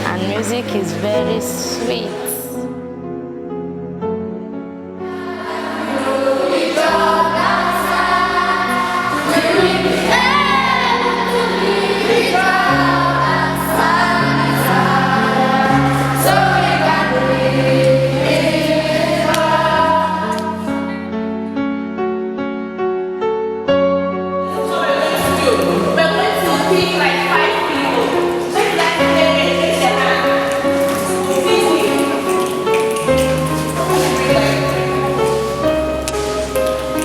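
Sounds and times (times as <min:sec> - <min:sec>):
keyboard chords: 0:00.0 - 0:37.0
choir singing: 0:05.0 - 0:21.2, 0:24.5 - 0:37.0.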